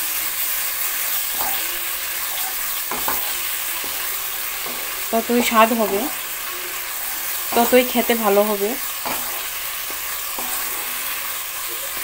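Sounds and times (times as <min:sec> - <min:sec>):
paste sizzling in oil: 0:00.0 - 0:12.0
wooden spatula scraping pan: 0:01.3 - 0:11.4
person's voice: 0:05.1 - 0:06.2, 0:07.6 - 0:08.8.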